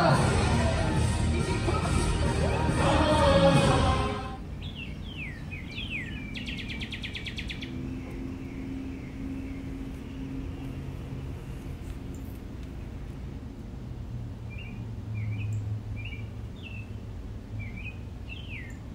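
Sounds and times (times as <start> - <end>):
show music: 0.0 - 4.4
voices: 0.0 - 13.6
low steady hum: 0.0 - 18.9
bird chirps sweeping downward: 4.4 - 12.4, 17.6 - 18.9
rapid bird trill: 4.4 - 12.4, 14.5 - 18.9.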